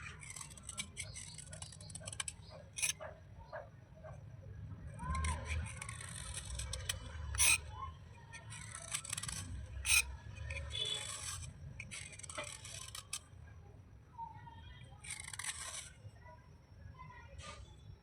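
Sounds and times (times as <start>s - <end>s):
wet slate scraping: 0.0s - 3.0s, 8.4s - 13.2s, 15.0s - 16.0s.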